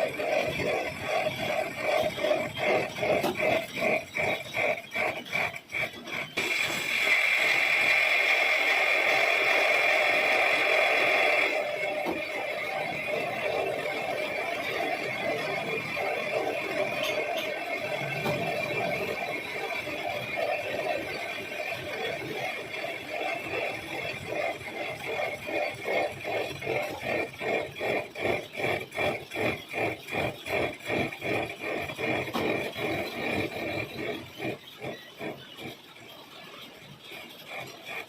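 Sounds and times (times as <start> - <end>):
lathe cutting metal: 0.0 - 38.0.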